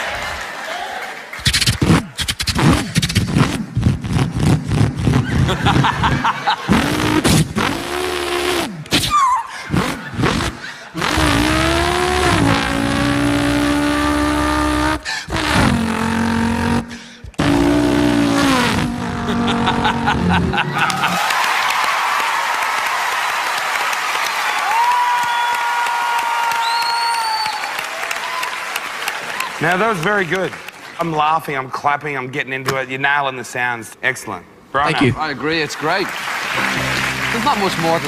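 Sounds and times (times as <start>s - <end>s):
person imitating racing car: 6.7s - 21.2s
steady whistle: 25.1s - 25.7s, 26.5s - 27.7s.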